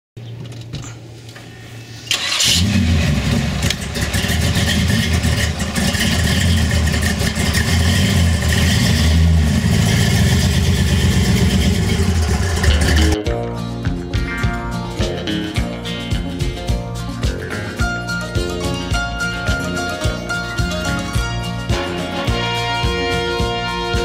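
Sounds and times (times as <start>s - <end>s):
hot-rod engine starting and rumbling: 2.0s - 13.2s.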